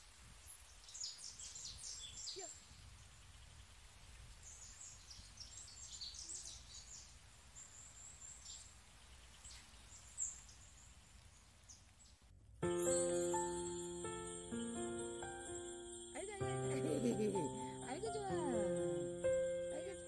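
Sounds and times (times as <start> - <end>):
small birds chirping: 0.4 - 20.0
music: 12.6 - 20.0.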